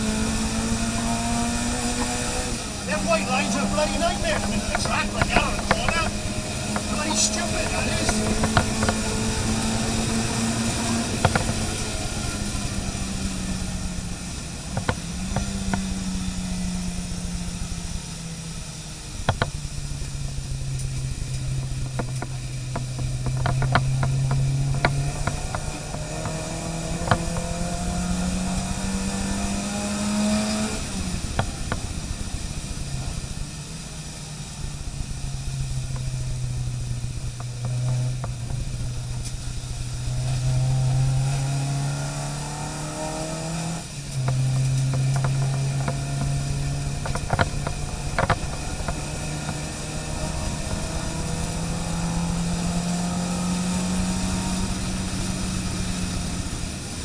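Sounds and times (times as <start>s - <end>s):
car engine revving under load: 0.0s - 57.0s
sharp clicks or knocks: 1.8s - 13.2s, 14.7s - 16.1s, 19.2s - 30.7s, 31.3s - 31.9s, 44.1s - 51.5s.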